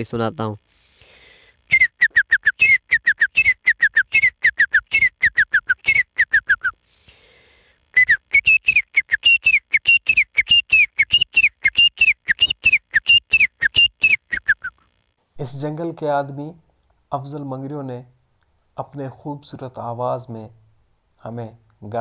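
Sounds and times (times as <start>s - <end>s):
man whistling bird call: 1.7s - 6.8s, 7.9s - 14.8s.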